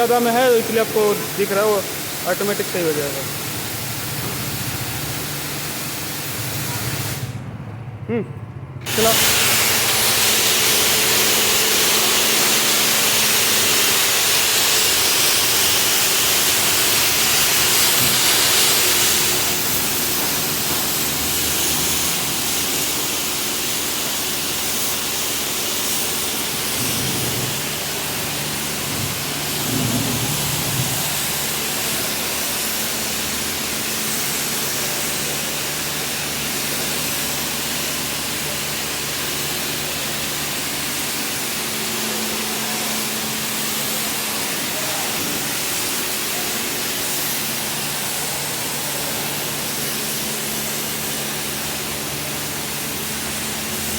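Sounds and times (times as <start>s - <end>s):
high-pressure water spray hissing: 0.0s - 7.4s, 8.8s - 53.9s
pump motor humming: 8.8s - 39.0s.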